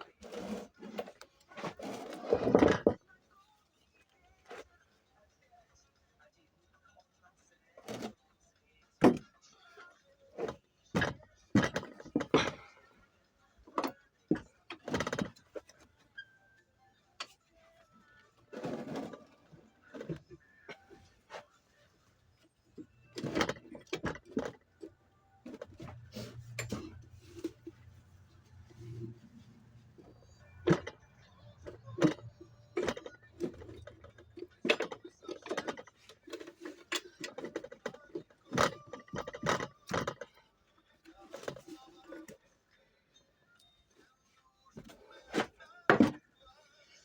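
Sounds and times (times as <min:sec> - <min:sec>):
metal tools knocking and clattering: 0:10.4 - 0:12.8, 0:22.8 - 0:24.7, 0:30.2 - 0:40.4.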